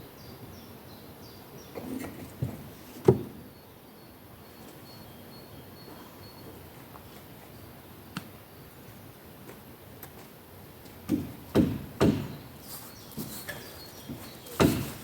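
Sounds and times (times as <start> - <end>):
irregular knocks and thuds: 1.8 - 3.4, 10.8 - 12.4, 13.1 - 15.0.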